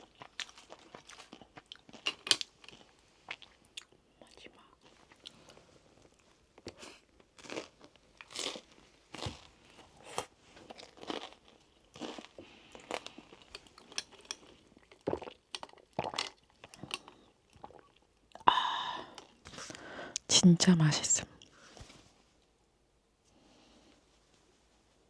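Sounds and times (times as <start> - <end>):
person chewing crunchy food: 0.0 - 4.0, 4.8 - 18.5.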